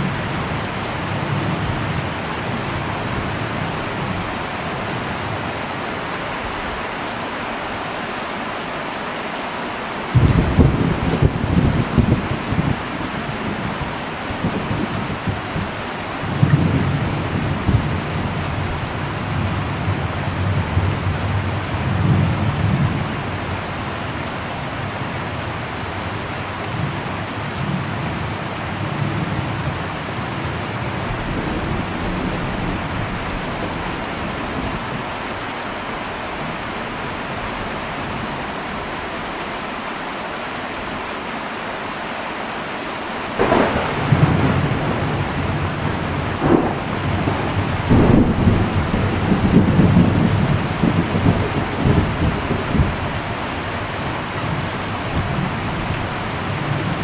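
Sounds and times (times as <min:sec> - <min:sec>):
heavy rain on a metal roof: 0:00.0 - 0:57.0
deep thunder rumbling: 0:10.1 - 0:23.8, 0:43.4 - 0:57.0.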